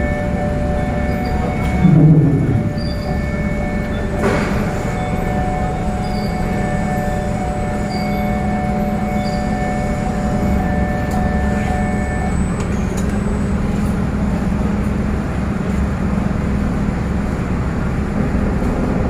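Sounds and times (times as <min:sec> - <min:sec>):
high machine whine: 0:00.0 - 0:13.2
ferry machinery rumble: 0:00.0 - 0:19.0.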